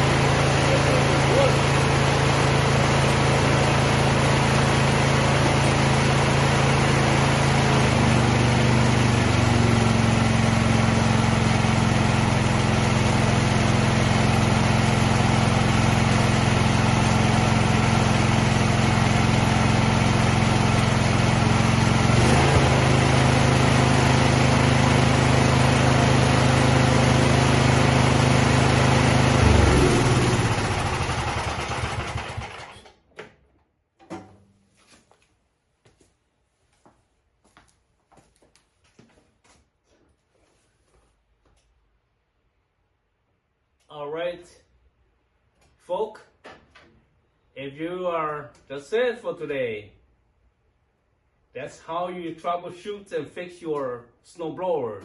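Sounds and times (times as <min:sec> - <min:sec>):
snow blower engine running: 0:00.0 - 0:33.0.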